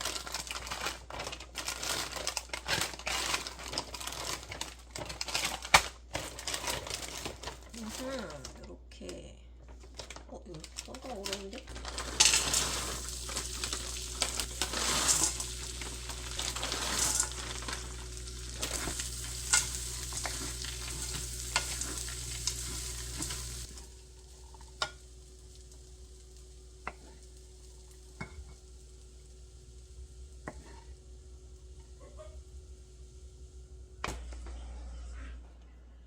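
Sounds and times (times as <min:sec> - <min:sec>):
low hum: 0:11.7 - 0:26.2
food sizzling in a frying pan: 0:11.7 - 0:34.4
utensils clicking against pan: 0:18.6 - 0:23.7.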